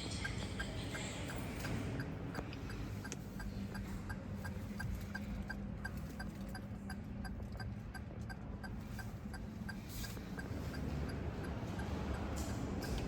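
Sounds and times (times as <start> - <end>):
turn signal ticking: 2.0 - 12.2.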